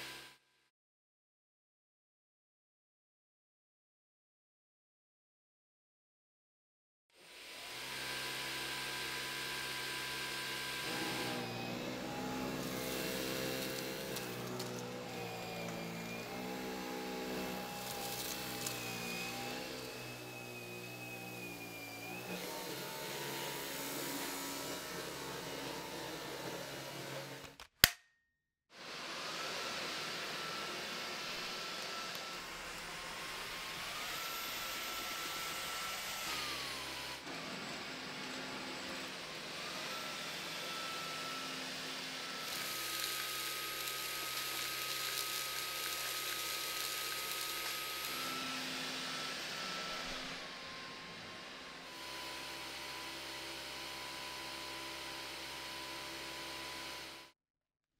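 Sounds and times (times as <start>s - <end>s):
cordless vacuum whining: 7.2s - 27.7s, 28.8s - 57.2s
sharp click: 27.4s - 28.1s.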